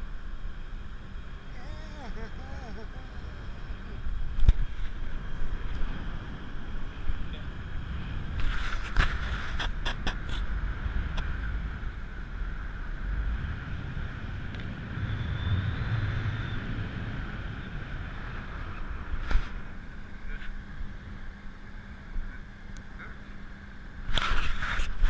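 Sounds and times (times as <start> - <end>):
boat engine rumbling: 0.0 - 9.6.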